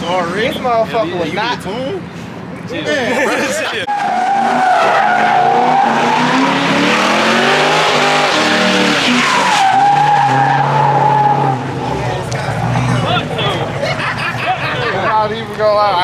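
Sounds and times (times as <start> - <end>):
car engine revving: 3.9 - 15.9.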